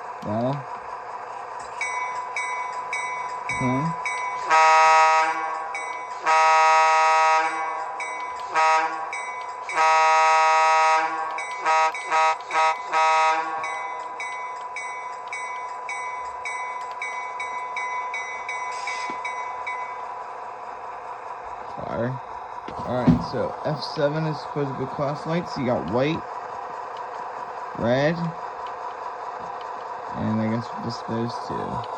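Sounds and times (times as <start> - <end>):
locomotive bell ringing: 1.6 - 20.8
model locomotive horn toots: 4.4 - 13.8.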